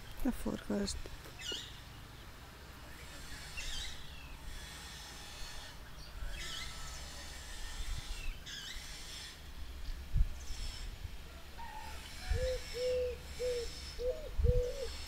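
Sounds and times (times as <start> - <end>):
small bird singing: 1.4 - 2.3.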